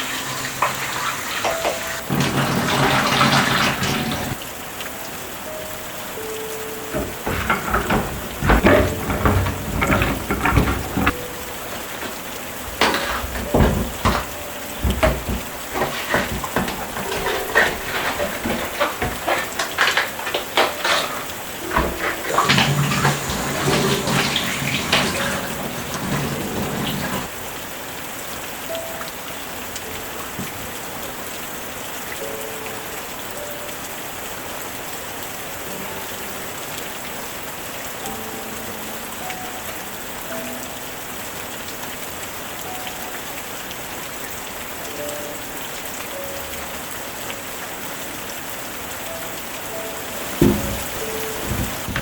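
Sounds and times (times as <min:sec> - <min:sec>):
steady rain falling: 0:00.0 - 0:52.0
clinks and knocks of handling: 0:06.9 - 0:27.3, 0:50.2 - 0:52.0.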